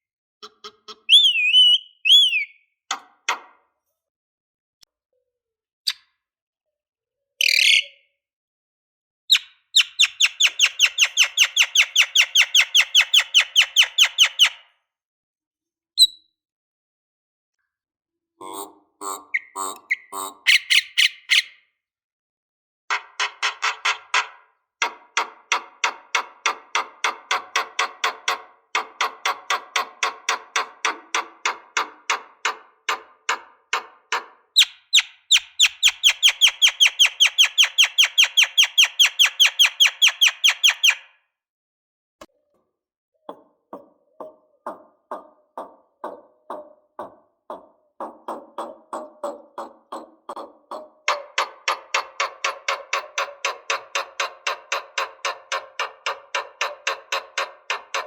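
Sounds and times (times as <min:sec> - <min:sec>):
lovebird chattering trill: 0:00.4 - 0:02.6, 0:09.3 - 0:14.6, 0:19.0 - 0:21.5, 0:34.6 - 0:41.0.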